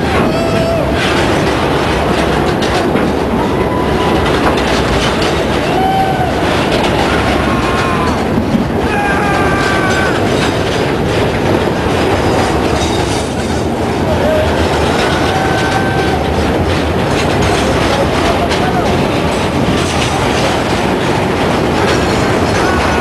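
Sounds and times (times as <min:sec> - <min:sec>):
train wheels clattering: 0:00.0 - 0:23.0.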